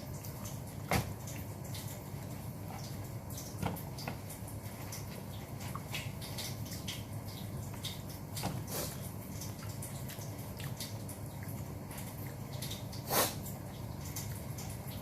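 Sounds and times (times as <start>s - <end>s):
wet chewing and lip smacks: 9.4s - 13.0s.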